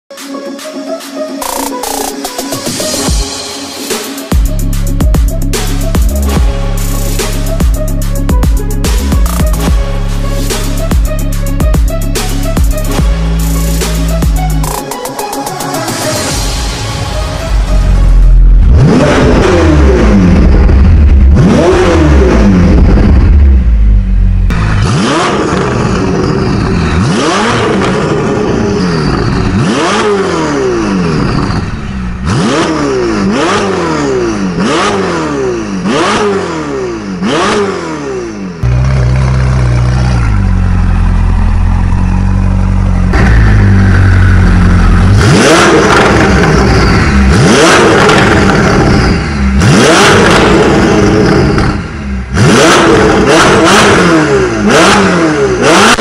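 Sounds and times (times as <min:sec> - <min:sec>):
sports car engine revving: 0:18.6 - 0:56.0.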